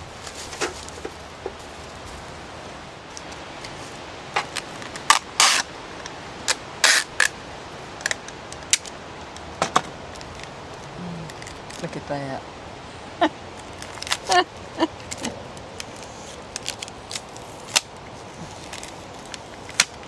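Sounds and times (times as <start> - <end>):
plastic crinkling: 0.0 - 5.6, 15.0 - 20.0
bubble wrap snapping: 15.1 - 20.0.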